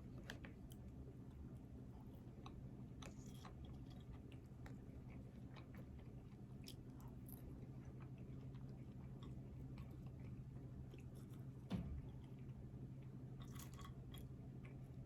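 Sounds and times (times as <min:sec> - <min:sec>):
steady low hum: 0:00.0 - 0:15.0
person chewing food: 0:02.3 - 0:11.5.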